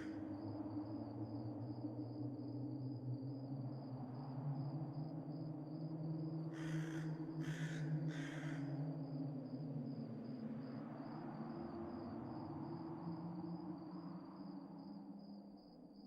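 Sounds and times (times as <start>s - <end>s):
low ambient drone: 0.0s - 16.0s
crow cawing: 6.5s - 8.7s.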